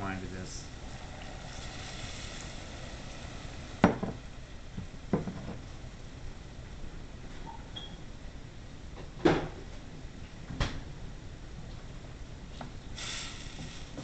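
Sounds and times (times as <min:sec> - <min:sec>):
hot pan sizzling: 0:00.7 - 0:04.5, 0:12.9 - 0:14.0
kitchenware knocks: 0:03.8 - 0:04.2.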